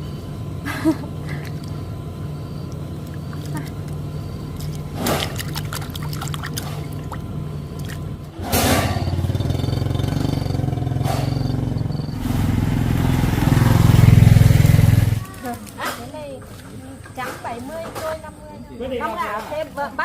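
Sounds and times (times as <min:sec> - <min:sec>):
small engine humming: 0:00.0 - 0:15.8.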